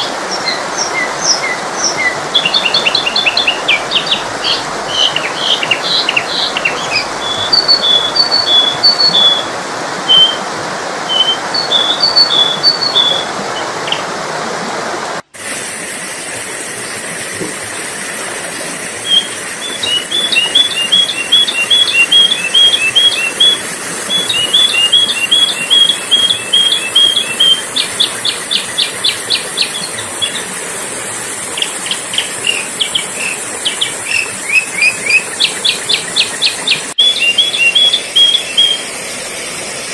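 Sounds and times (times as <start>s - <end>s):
bird chirping: 0.0s - 9.5s, 11.1s - 13.3s, 19.1s - 30.5s, 31.6s - 38.8s
steady high hiss: 0.0s - 14.0s.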